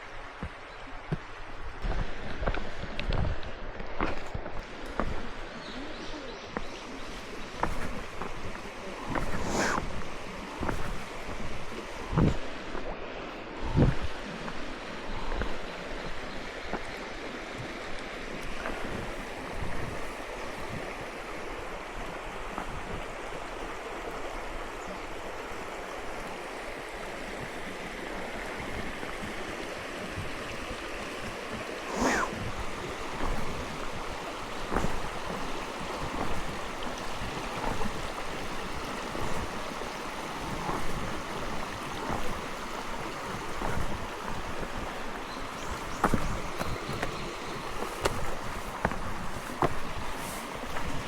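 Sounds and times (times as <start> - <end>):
rushing outdoor noise: 0.0 - 51.0
footsteps: 6.5 - 12.9, 31.8 - 51.0.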